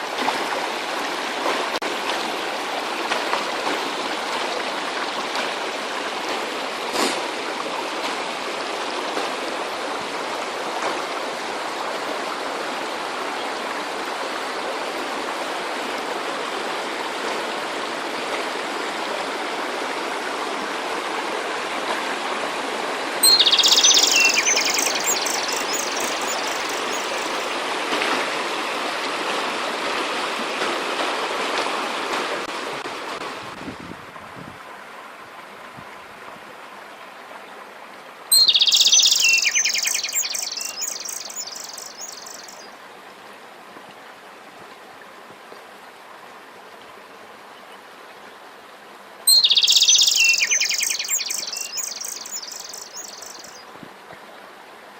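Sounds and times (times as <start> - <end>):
stream rushing: 0.0 - 54.9
songbird rapid repeated notes: 23.2 - 27.5, 38.4 - 42.6, 49.4 - 53.6.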